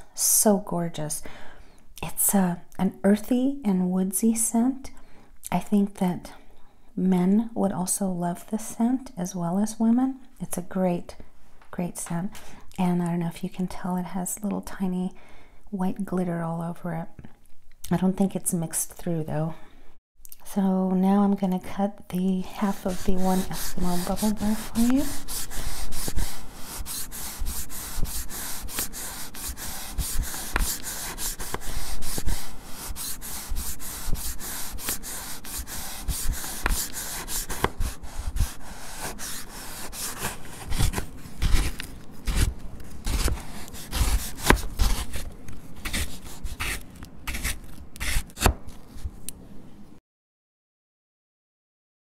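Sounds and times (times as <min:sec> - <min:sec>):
bath bar being cut crumbly scraping: 0:22.6 - 0:49.1.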